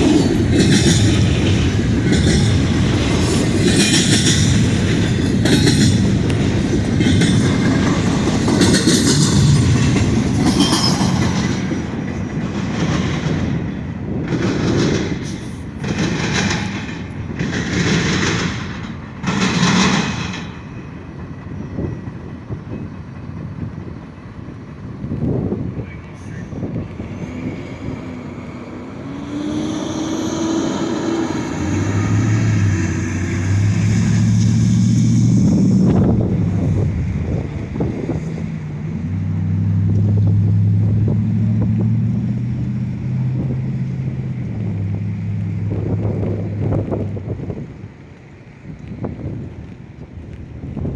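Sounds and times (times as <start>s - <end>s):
freight train rolling past: 0.0s - 50.9s
wheels clicking over rails: 0.0s - 50.9s
wind buffeting microphone: 0.0s - 50.9s.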